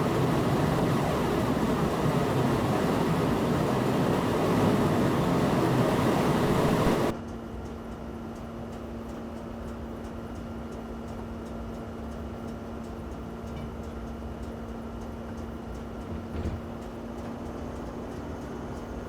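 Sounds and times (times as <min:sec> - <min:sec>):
low steady hum: 0:00.0 - 0:07.2
train running noise: 0:00.0 - 0:07.2, 0:12.7 - 0:19.0.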